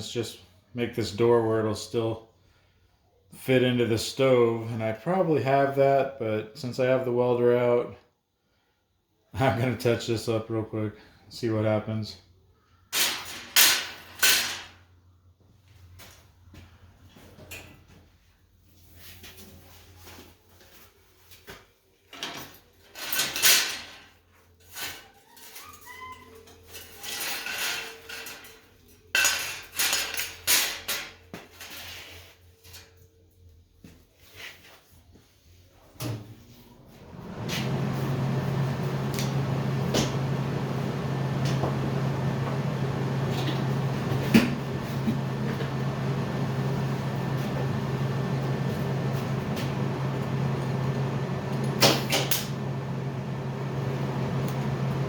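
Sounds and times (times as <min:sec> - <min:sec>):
steady low hum: 0:36.8 - 0:55.0.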